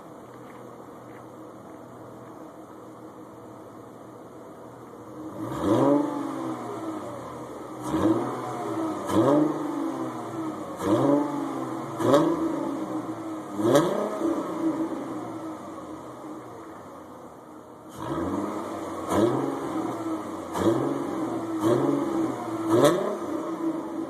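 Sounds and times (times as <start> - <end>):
car engine revving: 5.2 - 16.5, 17.9 - 24.0.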